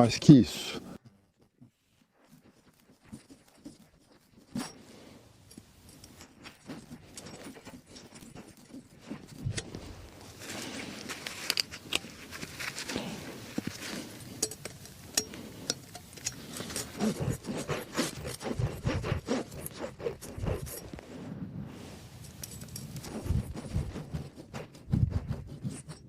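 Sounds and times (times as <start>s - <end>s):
wood and tools handled: 2.3s - 21.0s.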